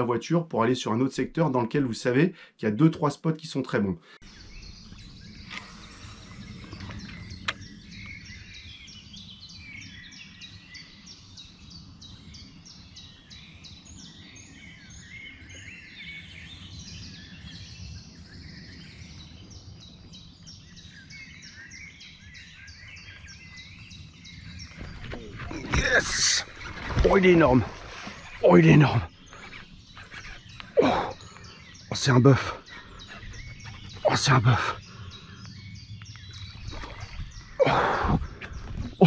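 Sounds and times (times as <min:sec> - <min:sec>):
birds chirping and singing: 0:00.0 - 0:39.0.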